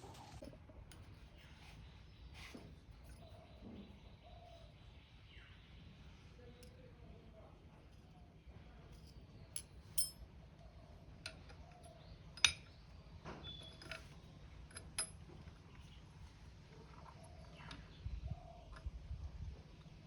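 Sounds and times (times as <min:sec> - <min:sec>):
low steady hum: 0:03.0 - 0:20.0
light metal clinks and taps: 0:08.9 - 0:10.3, 0:11.2 - 0:12.8, 0:13.5 - 0:15.2.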